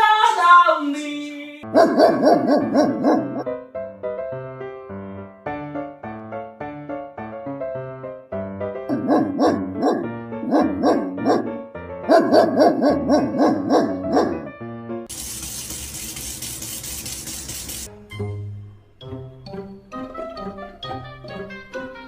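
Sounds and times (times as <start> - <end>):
plucked background music: 1.6 - 15.1, 17.6 - 22.0
dog barking rapidly: 1.7 - 3.5, 8.9 - 14.5.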